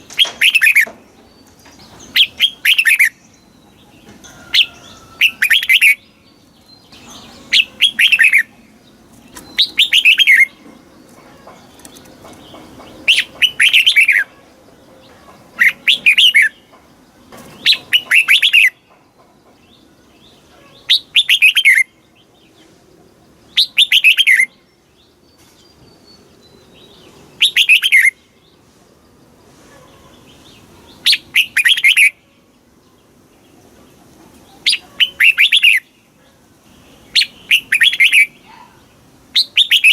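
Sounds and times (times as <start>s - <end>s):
bulbul singing whistled notes: 39.4s - 39.9s.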